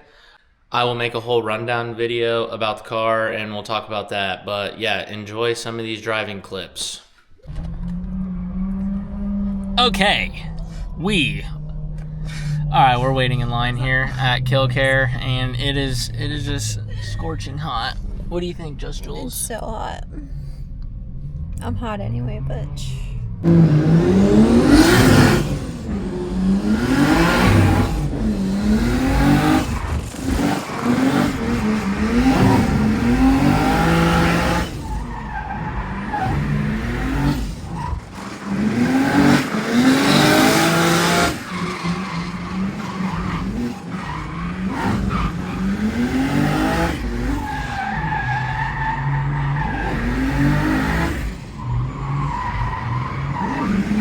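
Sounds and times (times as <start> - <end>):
tyres skidding and squealing: 7.3 - 54.0
car engine revving: 7.5 - 54.0.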